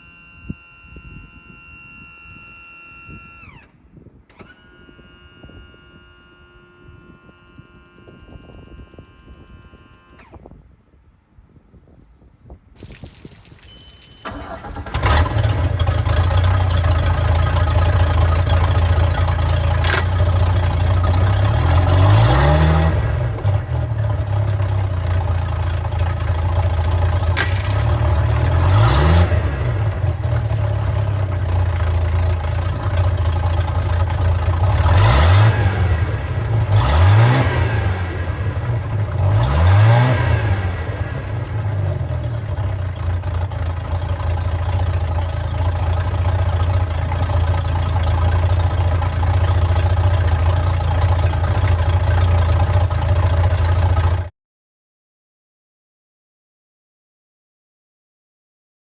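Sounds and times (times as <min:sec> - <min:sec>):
engine throttle blips: 0:00.0 - 0:10.6, 0:12.8 - 0:54.3
boat engine idling: 0:14.1 - 0:54.3.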